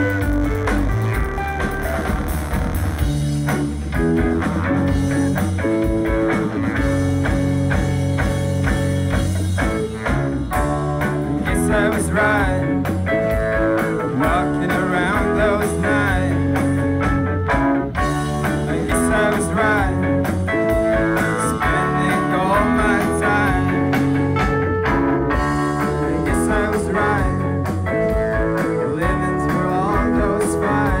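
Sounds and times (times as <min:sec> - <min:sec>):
guitars: 0:00.0 - 0:31.0
steady drum beat: 0:00.0 - 0:31.0
person singing: 0:11.2 - 0:16.7, 0:18.4 - 0:24.1, 0:25.6 - 0:31.0.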